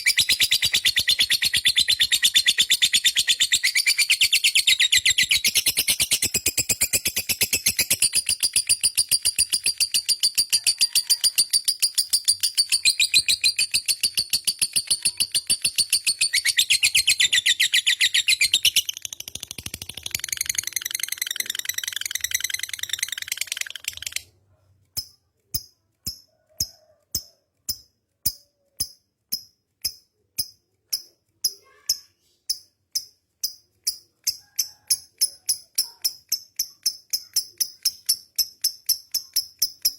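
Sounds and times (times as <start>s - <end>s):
lovebird trilling: 0.0s - 24.2s.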